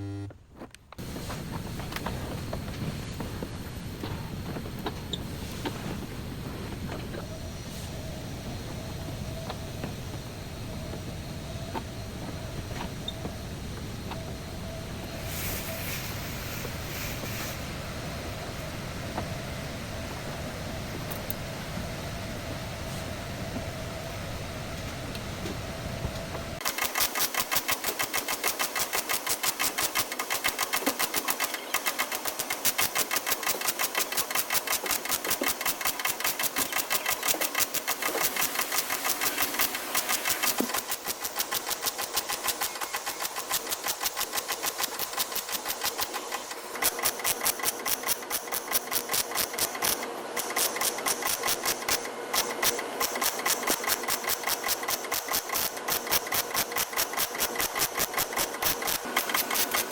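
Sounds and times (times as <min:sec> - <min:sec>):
power tool rattling: 0:26.6 - 0:59.9.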